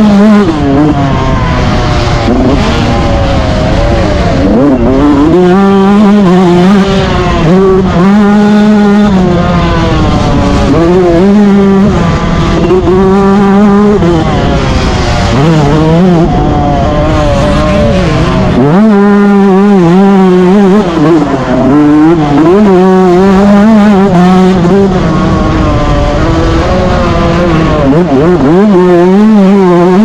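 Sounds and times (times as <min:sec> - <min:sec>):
motocross engine revving: 0:00.0 - 0:30.0.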